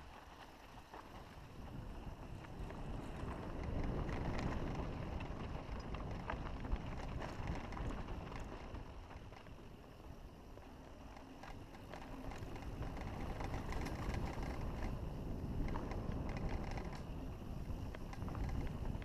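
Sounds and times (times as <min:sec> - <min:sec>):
wind rumbling on microphone: 0:00.0 - 0:19.0
faint clicks: 0:10.6 - 0:19.0.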